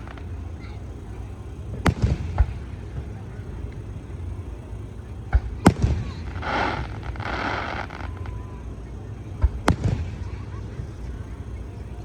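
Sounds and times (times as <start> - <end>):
loud firework bang: 0.0 - 4.4, 5.3 - 8.6, 9.3 - 11.0
firework shells bursting: 0.0 - 11.8.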